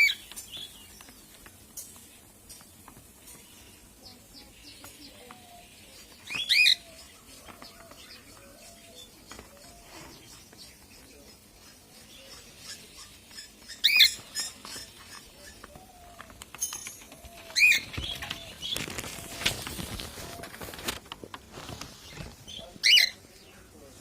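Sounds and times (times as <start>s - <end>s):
soft repeated chirping: 0.0s - 19.5s
wings flapping and rustling: 0.0s - 24.0s
parrots shrill calls: 6.3s - 7.2s, 12.3s - 15.7s, 17.2s - 18.5s, 22.8s - 23.2s.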